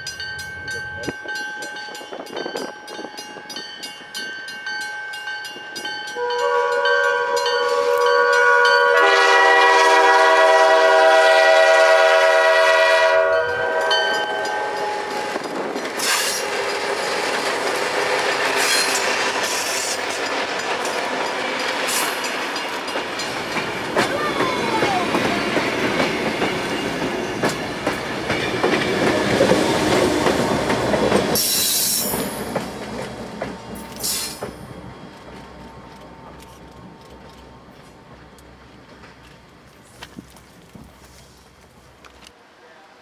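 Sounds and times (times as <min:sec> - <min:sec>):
wheels clattering on rails: 0:13.8 - 0:42.4.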